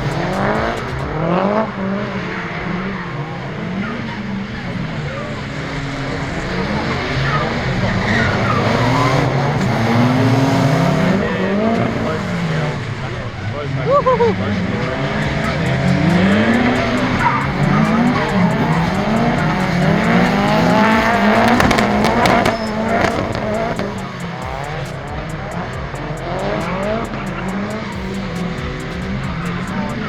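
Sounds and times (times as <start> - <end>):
car engines revving: 0.0 - 30.0
tyres squealing: 2.3 - 30.0.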